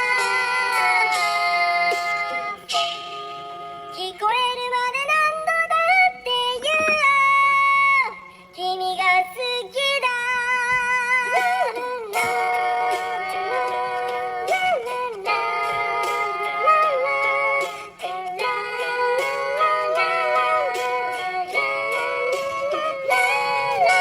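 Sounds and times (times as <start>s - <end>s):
backing music: 0.0s - 4.7s, 10.8s - 24.0s.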